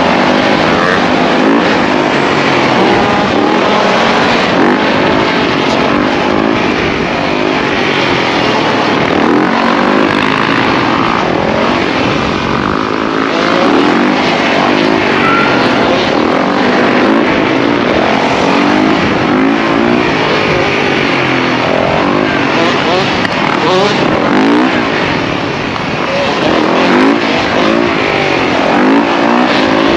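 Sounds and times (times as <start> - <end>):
several engines revving: 0.0 - 29.9.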